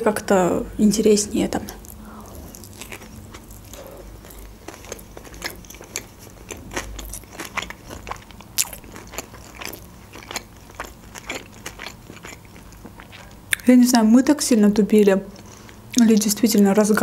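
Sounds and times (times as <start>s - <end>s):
wet chewing crunches: 1.8s - 13.7s, 15.3s - 17.0s.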